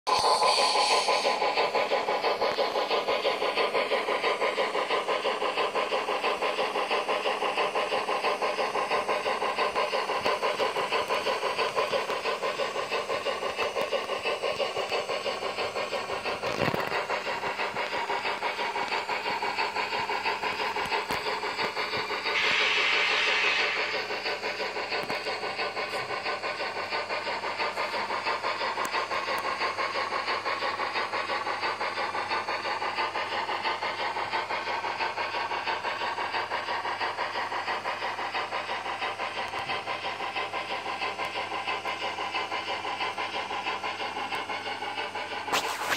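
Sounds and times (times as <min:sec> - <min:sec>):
model locomotive chuffing: 0:00.1 - 0:45.9
steam hiss: 0:00.1 - 0:45.9
click: 0:09.8 - 0:15.2, 0:27.9 - 0:29.6, 0:39.4 - 0:39.7.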